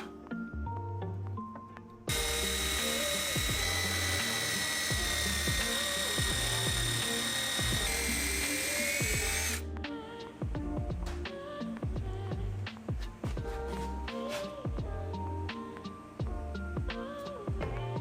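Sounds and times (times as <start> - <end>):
background music: 0.0 - 18.0
power drill whining: 2.1 - 9.6.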